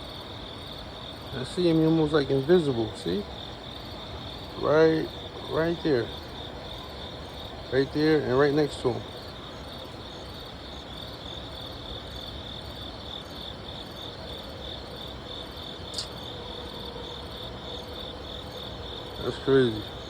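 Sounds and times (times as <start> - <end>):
crickets chirping: 0.0 - 20.0
short click: 15.9 - 16.2.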